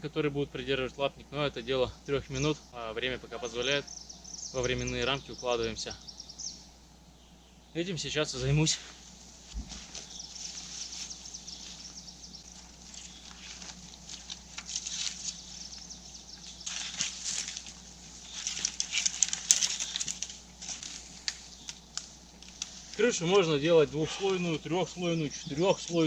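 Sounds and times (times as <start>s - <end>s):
spruce boughs rustling and crackling: 8.0s - 26.0s.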